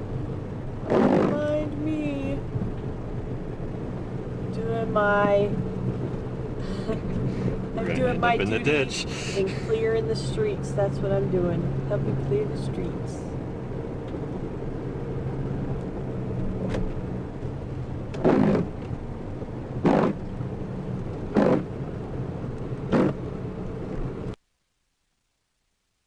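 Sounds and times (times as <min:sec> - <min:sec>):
car engine running: 0:00.0 - 0:24.4
short noisy swishes: 0:19.8 - 0:20.2.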